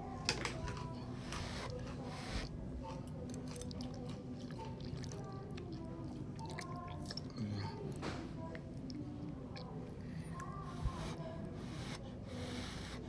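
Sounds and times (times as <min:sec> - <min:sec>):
quiet background music: 0:00.0 - 0:13.0
person chewing food: 0:03.3 - 0:07.4.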